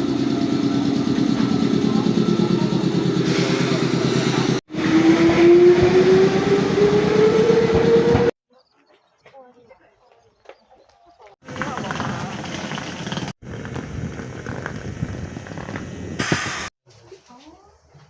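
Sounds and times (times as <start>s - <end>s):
electric train motor whine: 0.0s - 8.4s.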